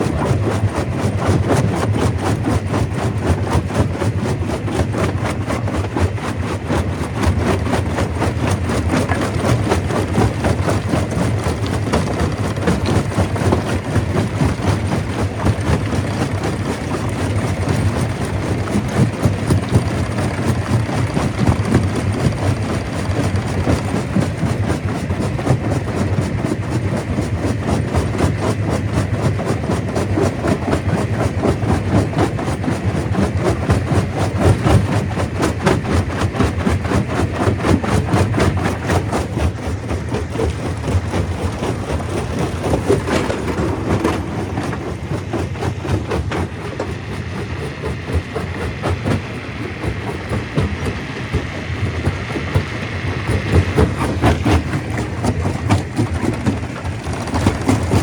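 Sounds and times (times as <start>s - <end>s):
deep machine drone: 0.0s - 58.0s
rock clattering in crusher: 33.2s - 46.9s, 53.3s - 58.0s.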